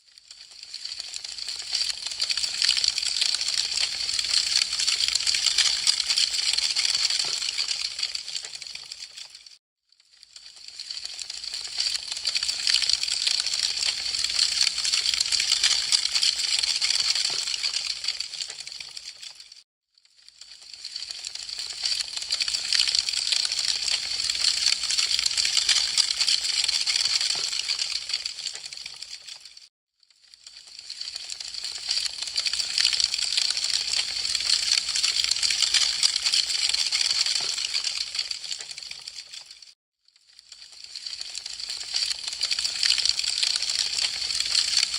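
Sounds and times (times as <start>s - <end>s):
wood fire crackling and popping: 0.4s - 9.3s, 10.3s - 19.4s, 20.4s - 29.5s, 30.8s - 39.5s, 40.7s - 44.9s.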